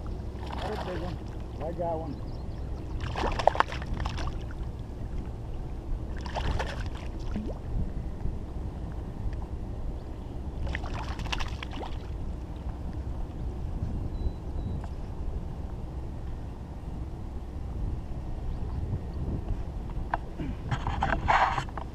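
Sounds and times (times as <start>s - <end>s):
wind on microphone: 0.0s - 21.9s
water splashing: 0.4s - 1.6s, 3.0s - 4.7s, 6.1s - 7.7s, 10.6s - 12.2s.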